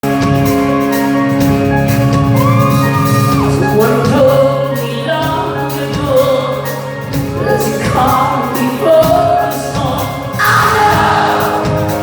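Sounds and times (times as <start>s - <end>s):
live band with singing: 0.0s - 12.0s
high held shout: 10.4s - 11.8s.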